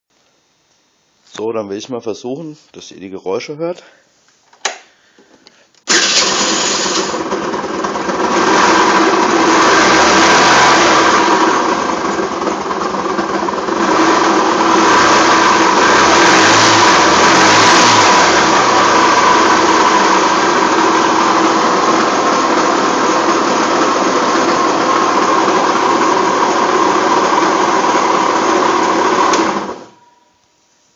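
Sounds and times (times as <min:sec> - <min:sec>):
scooter engine starting and revving: 0:05.9 - 0:30.0.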